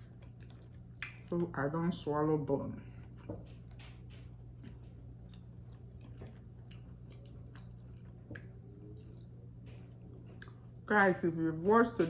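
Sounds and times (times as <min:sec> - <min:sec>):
person chewing: 0:00.0 - 0:01.4, 0:03.0 - 0:10.8
mouth clicks and smacks: 0:00.4 - 0:01.3.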